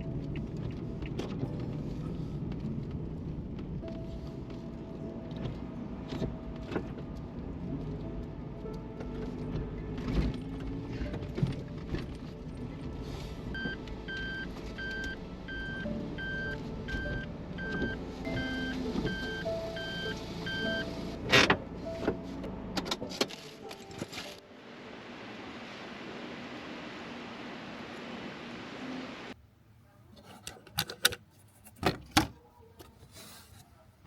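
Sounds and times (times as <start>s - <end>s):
van engine running: 0.0s - 23.6s.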